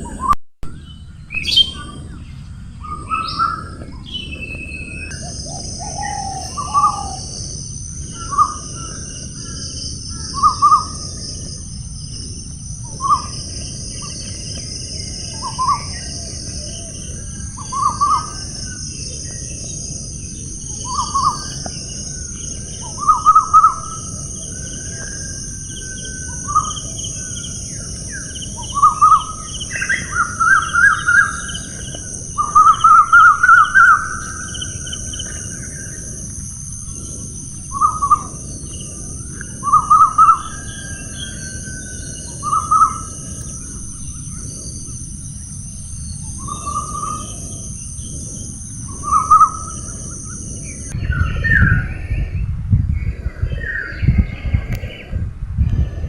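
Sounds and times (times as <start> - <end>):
bird calling in repeated notes: 0.0 - 11.2, 20.7 - 36.0
low rumble: 0.0 - 56.0.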